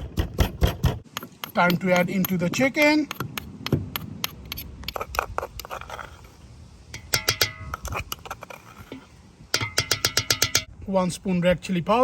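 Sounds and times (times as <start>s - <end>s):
metal utensil scraping metal bowl: 7.0s - 10.7s.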